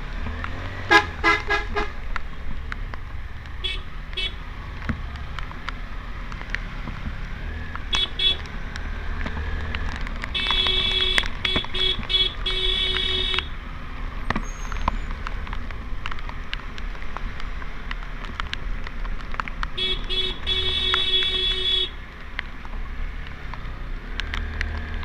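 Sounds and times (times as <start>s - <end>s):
rain: 0.0s - 0.9s, 1.8s - 25.0s
motorcycle rumble: 0.0s - 25.0s
vehicle horn beeping: 0.9s - 1.9s, 10.4s - 13.5s, 19.8s - 22.0s.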